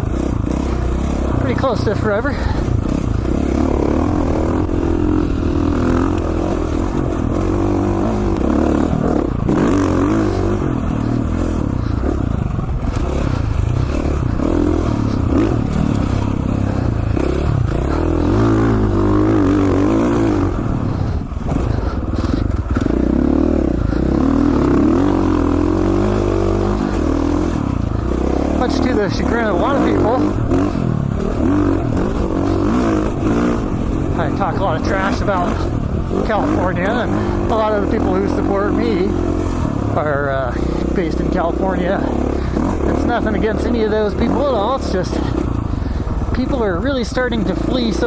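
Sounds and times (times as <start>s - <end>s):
dirt bike engine under load: 0.0s - 48.0s.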